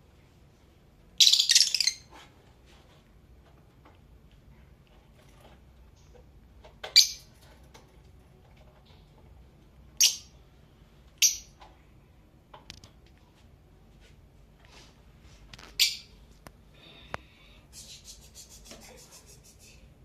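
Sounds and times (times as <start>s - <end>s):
lovebirds chirping: 1.2s - 2.1s.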